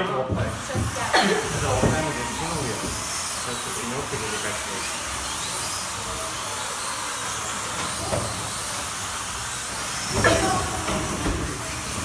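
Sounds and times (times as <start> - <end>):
electric motor whines: 0.5 - 12.0.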